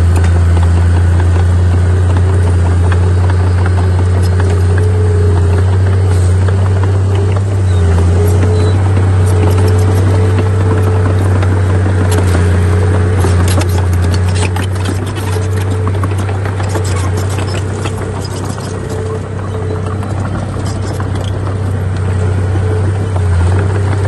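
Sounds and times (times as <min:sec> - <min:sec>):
heavy diesel machinery droning: 0:00.0 - 0:24.0
high machine whine: 0:00.0 - 0:24.0
metal clanks and scrapes: 0:07.9 - 0:22.0.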